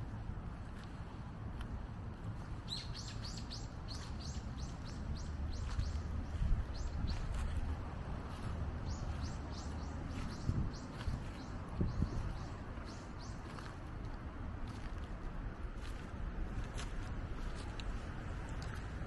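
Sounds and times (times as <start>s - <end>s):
steady low rumble: 0.0s - 19.0s
songbird chirping: 2.4s - 15.1s.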